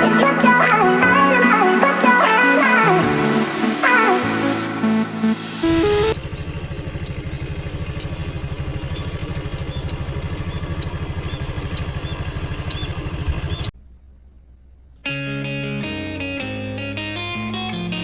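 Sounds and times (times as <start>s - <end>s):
guitar music: 0.0s - 6.2s, 15.0s - 18.0s
moped engine idling: 5.7s - 15.3s.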